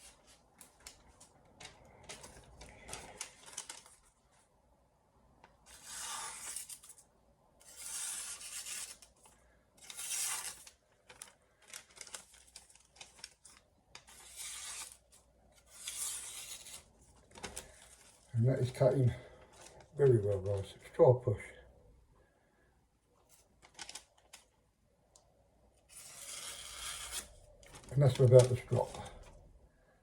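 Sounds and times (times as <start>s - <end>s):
paper ticks and rustles: 0.0s - 4.2s, 10.2s - 14.2s, 17.1s - 18.3s, 23.3s - 24.5s, 27.6s - 29.4s
knife slicing through paper: 5.7s - 7.0s, 7.6s - 9.1s, 9.8s - 10.7s, 14.0s - 16.9s, 25.9s - 27.3s.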